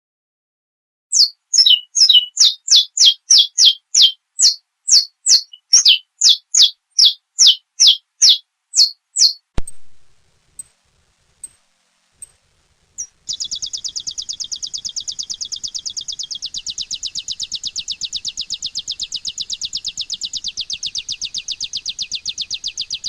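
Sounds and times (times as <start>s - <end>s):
finch singing sharp high notes: 1.1s - 9.4s, 13.3s - 23.0s
thump: 9.6s - 10.0s.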